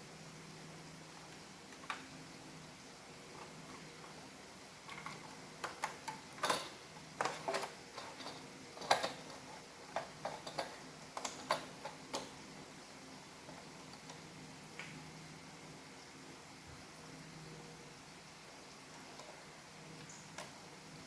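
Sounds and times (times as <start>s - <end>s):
hard plastic parts clicking: 4.9s - 12.3s.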